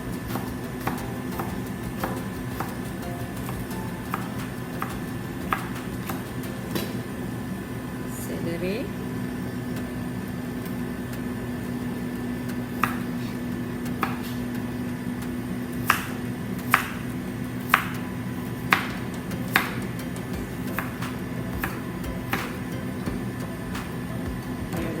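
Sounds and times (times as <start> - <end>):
knife cutting celery: 12.8 - 14.4, 15.8 - 20.0.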